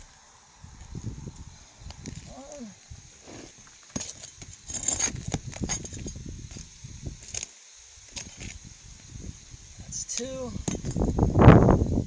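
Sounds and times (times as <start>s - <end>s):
metal tool scraping shingle: 3.2s - 6.6s.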